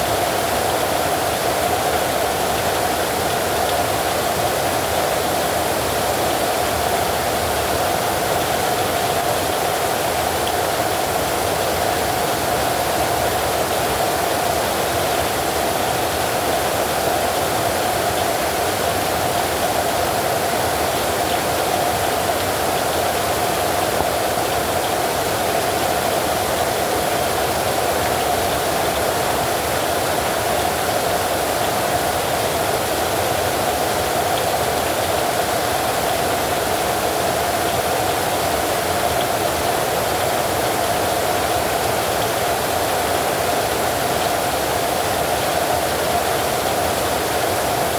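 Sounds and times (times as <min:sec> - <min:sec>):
heavy rain: 0:00.0 - 0:47.9.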